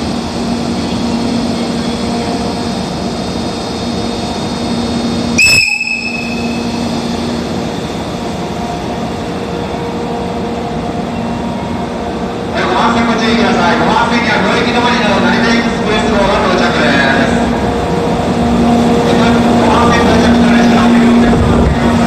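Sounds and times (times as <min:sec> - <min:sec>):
locomotive humming: 0:00.0 - 0:22.0
locomotive whistle blast: 0:05.4 - 0:06.8.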